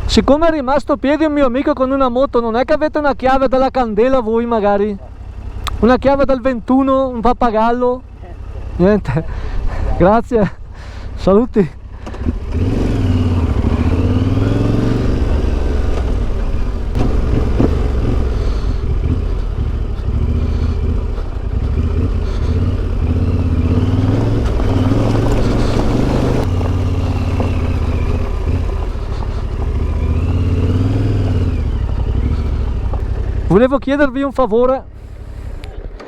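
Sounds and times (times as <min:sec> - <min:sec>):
motorcycle engine revving: 0:04.2 - 0:36.0.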